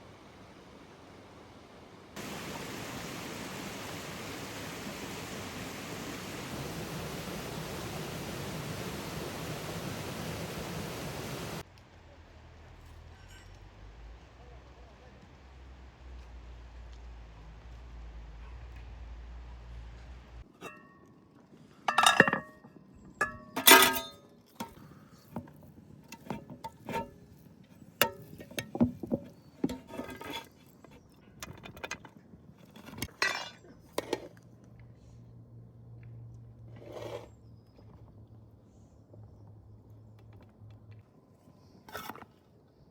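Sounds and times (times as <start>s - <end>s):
dishes and glassware clinking: 21.9s - 22.6s, 23.2s - 24.2s, 33.1s - 33.6s.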